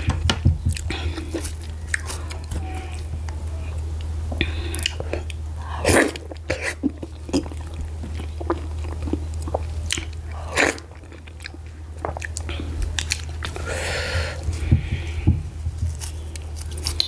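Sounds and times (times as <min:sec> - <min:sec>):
steady low hum: 0:00.0 - 0:17.0
soft tearing of food: 0:01.1 - 0:04.1, 0:15.8 - 0:17.0.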